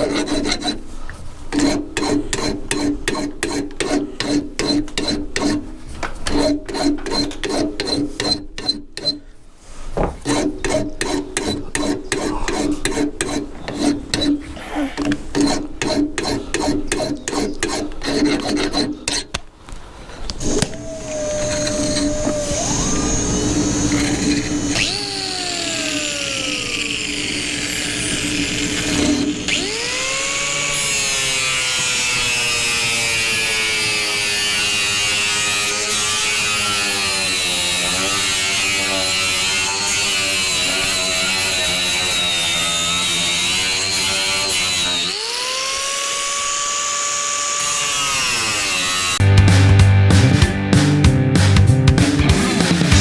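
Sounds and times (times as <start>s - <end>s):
angle grinder whining: 20.3s - 49.3s.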